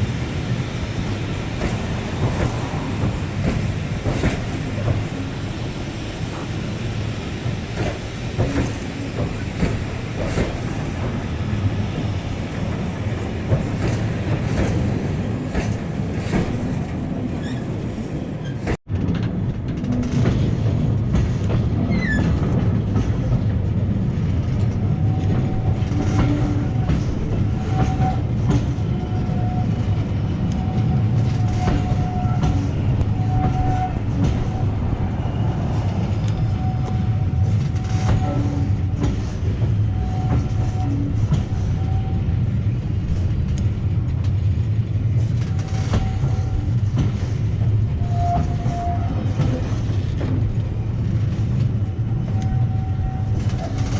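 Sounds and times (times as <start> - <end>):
wheels clacking over rail joints: 0.0 - 23.7
train rumble: 0.0 - 53.9.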